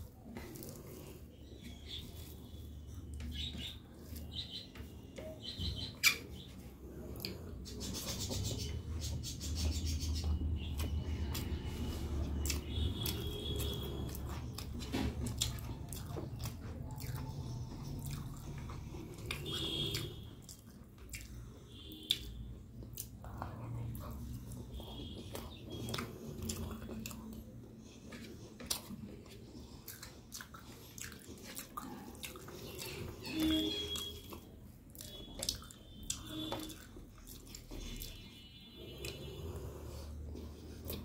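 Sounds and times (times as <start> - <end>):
person chewing: 0.0 - 4.5, 5.2 - 8.6, 10.2 - 41.0
wet mouth clicks and smacks: 18.0 - 23.5, 35.0 - 38.2.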